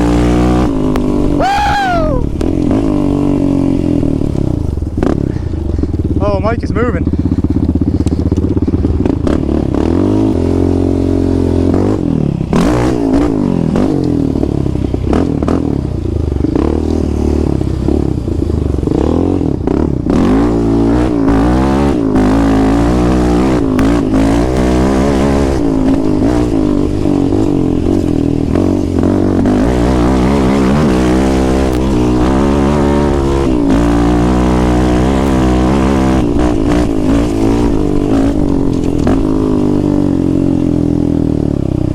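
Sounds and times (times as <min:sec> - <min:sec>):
atv engine revving: 0:00.0 - 0:41.9
clatters and knocks of vehicle: 0:04.7 - 0:10.3, 0:36.2 - 0:39.7.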